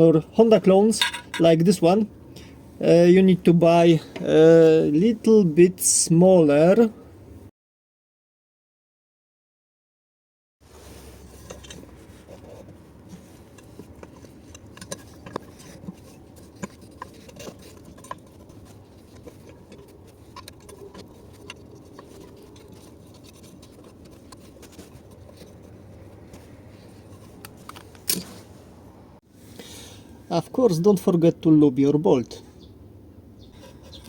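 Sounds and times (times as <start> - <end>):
low background hum: 0.0 - 7.5, 10.7 - 34.0
metal parts clicking and tapping: 1.0 - 1.5.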